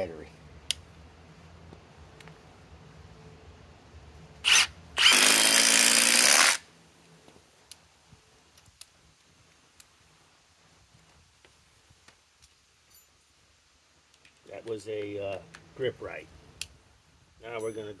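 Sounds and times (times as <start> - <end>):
impact driver driving screw: 4.5 - 6.6.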